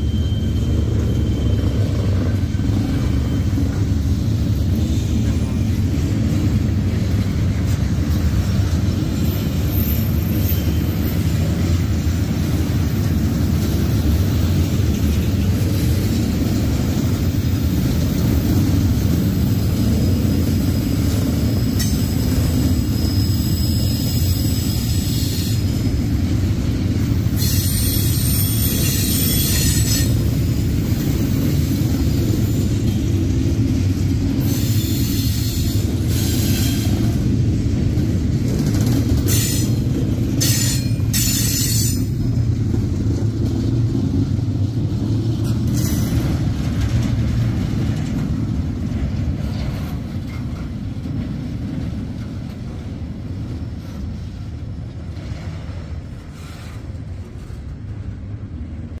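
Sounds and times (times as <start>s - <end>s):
train wheels rumbling on rail: 0.0s - 59.0s
high-pitched wheel screeches: 27.4s - 30.2s.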